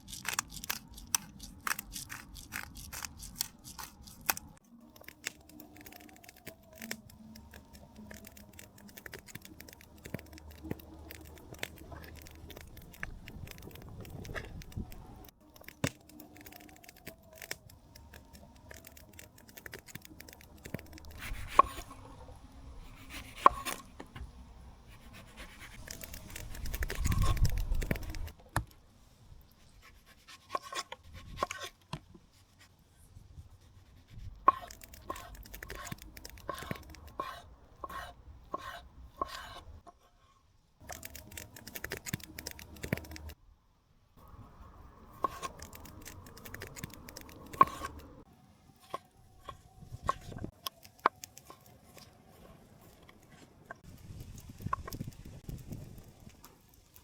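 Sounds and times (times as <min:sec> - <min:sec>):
knife chopping: 0:00.0 - 0:04.6, 0:34.5 - 0:39.6.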